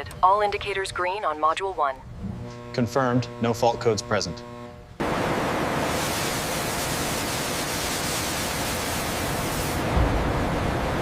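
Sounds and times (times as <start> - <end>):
steady hiss: 5.0 - 10.1.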